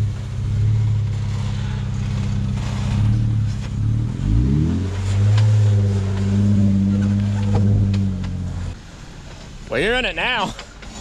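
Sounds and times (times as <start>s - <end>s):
engine pulling under load: 0.0s - 9.4s.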